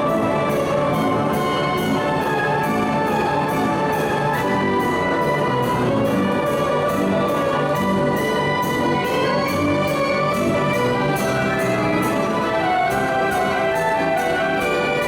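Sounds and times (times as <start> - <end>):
carousel band organ music: 0.0 - 15.0.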